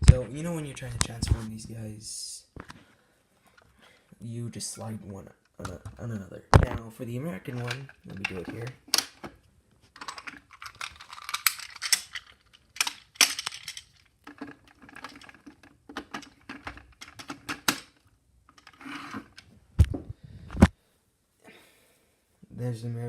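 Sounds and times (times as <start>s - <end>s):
plastic toys clicking and rattling: 7.4s - 19.5s.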